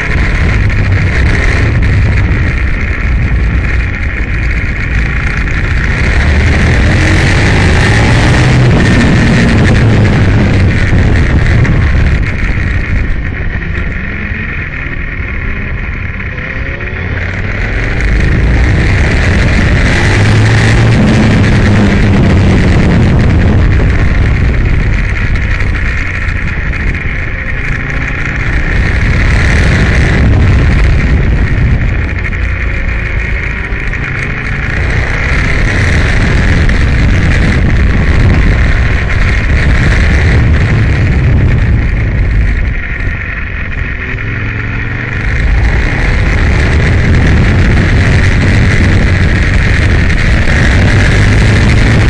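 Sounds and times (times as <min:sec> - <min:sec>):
motorcycle engine accelerating: 0:00.0 - 0:52.0
wind noise: 0:00.0 - 0:52.0.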